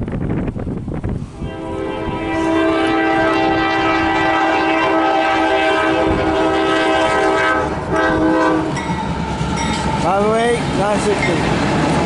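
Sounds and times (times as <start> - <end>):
locomotive air horn: 1.4 - 9.9.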